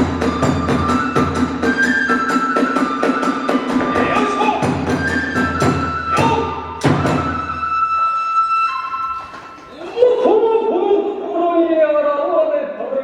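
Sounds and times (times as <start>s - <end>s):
bamboo flute melody: 0.0s - 10.4s.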